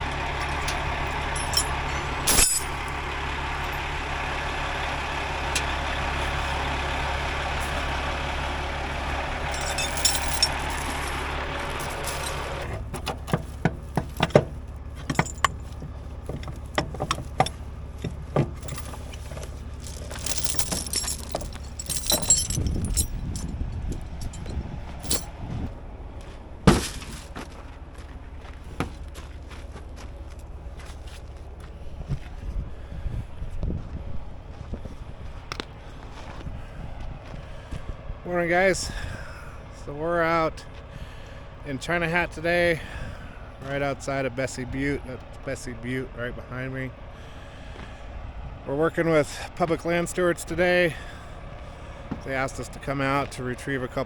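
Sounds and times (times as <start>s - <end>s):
vehicle engine humming: 0.0s - 54.0s
sharp clicks and knocks: 11.8s - 19.0s.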